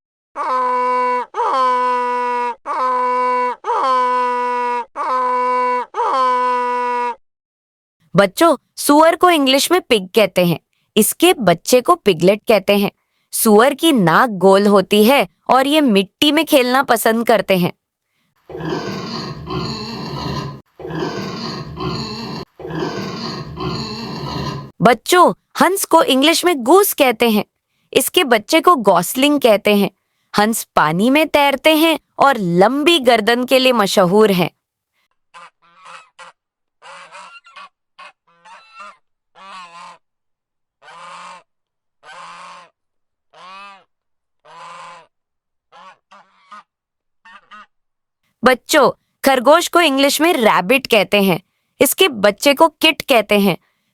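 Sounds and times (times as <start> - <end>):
pig grunting: 18.5 - 24.8
goose honking: 35.4 - 40.0.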